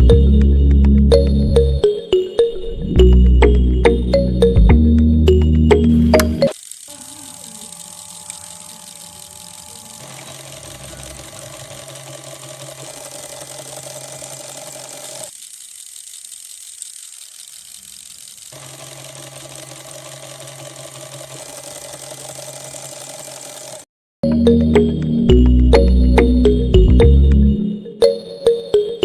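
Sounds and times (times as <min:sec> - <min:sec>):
small electric motor whirring: 0:06.5 - 0:23.9.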